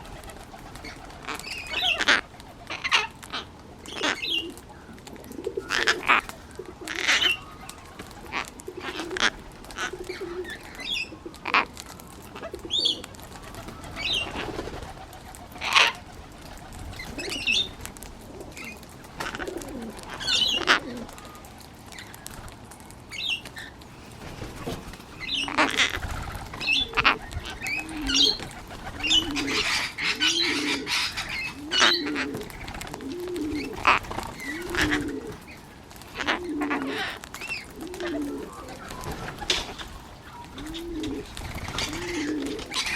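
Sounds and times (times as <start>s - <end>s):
pigeon cooing: 0.0s - 21.6s, 24.4s - 35.5s, 36.1s - 42.9s.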